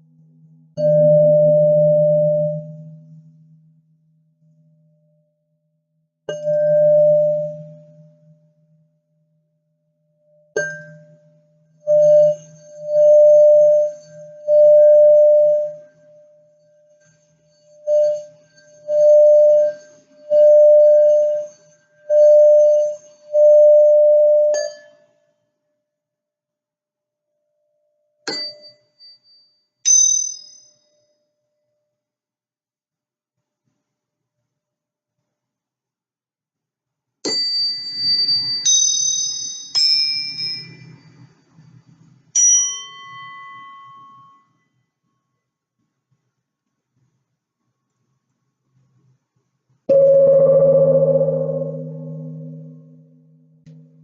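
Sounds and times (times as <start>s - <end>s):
singing bowl tone: 0.8s - 3.4s, 11.9s - 16.8s, 17.5s - 24.6s, 49.9s - 54.0s
small high-pitched bells ringing: 28.3s - 31.2s, 37.3s - 41.4s, 42.4s - 44.5s, 49.9s - 53.0s.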